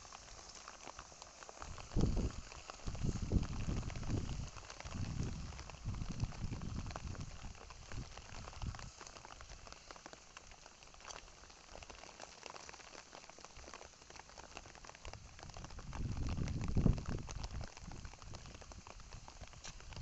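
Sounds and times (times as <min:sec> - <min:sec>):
heavy rain falling: 0:00.0 - 0:20.0.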